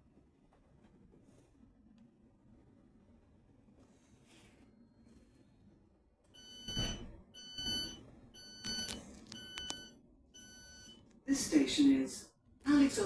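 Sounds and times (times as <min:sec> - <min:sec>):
train door alert beeping: 0:06.4 - 0:11.0.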